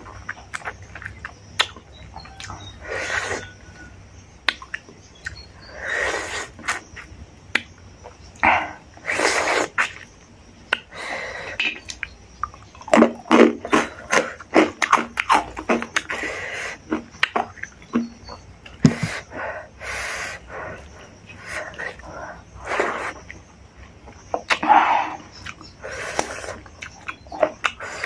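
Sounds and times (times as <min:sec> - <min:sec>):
wet chewing and lip smacks: 0:00.0 - 0:05.8, 0:06.4 - 0:08.5, 0:09.4 - 0:28.0
loud noisy breaths: 0:02.8 - 0:03.7, 0:05.6 - 0:06.8, 0:08.4 - 0:09.8, 0:10.8 - 0:11.6, 0:16.1 - 0:16.9, 0:18.8 - 0:23.3, 0:24.6 - 0:26.7.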